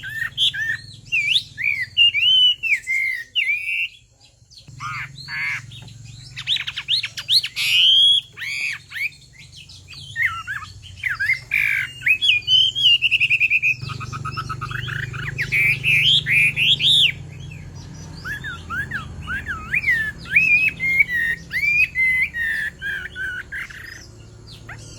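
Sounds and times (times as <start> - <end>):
bird singing whistled phrases: 0.0 - 24.9.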